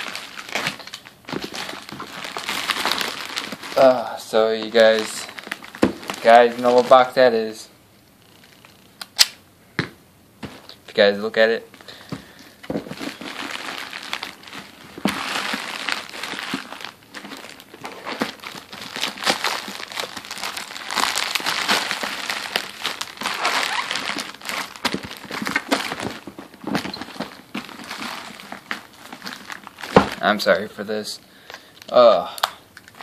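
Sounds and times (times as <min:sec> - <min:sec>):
packaging crinkling: 0:00.0 - 0:07.5, 0:11.7 - 0:30.7.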